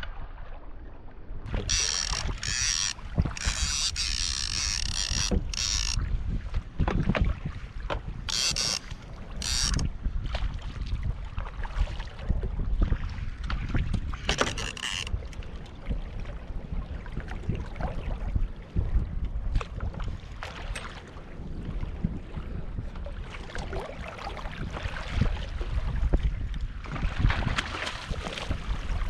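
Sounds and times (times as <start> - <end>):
wind rumbling on microphone: 0.0 - 29.0
water splashing around kayak hull: 1.4 - 29.0
small knocks on hull: 6.8 - 8.8.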